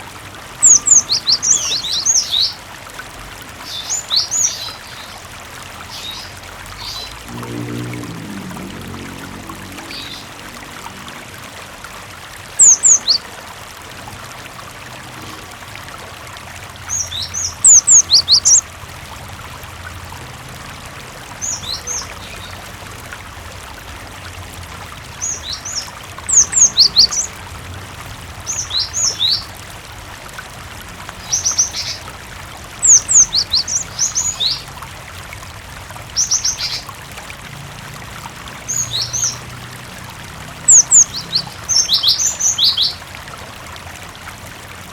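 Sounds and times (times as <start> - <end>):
running water: 0.0 - 44.9
bird singing whistled notes: 12.6 - 13.2.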